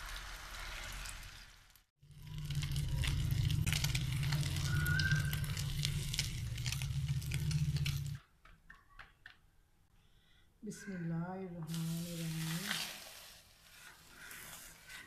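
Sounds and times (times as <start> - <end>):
omelette sizzling with crackling pops: 0.0 - 8.2
low steady hum: 2.1 - 8.2.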